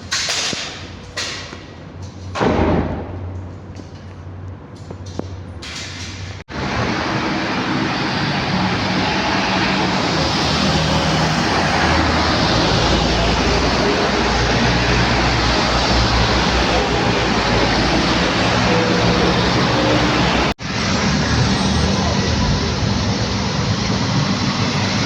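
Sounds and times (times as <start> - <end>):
jet engines roaring: 6.5 - 25.0.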